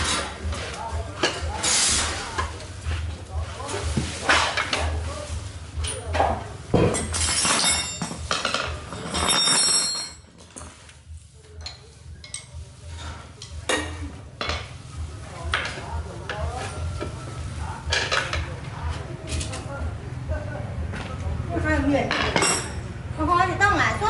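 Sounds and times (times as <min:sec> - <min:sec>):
hard objects clinking and scraping: 0:00.0 - 0:14.8.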